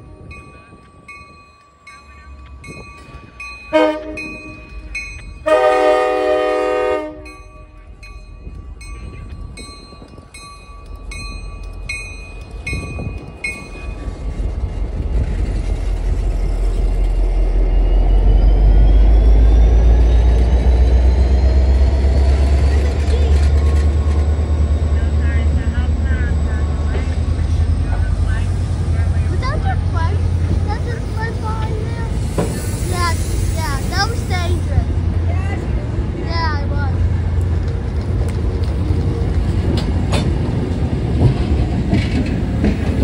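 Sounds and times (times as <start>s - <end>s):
crossing bell dinging: 0.0s - 14.6s
locomotive rumbling past: 0.0s - 43.0s
train horn blasts: 3.7s - 4.6s, 5.4s - 7.7s.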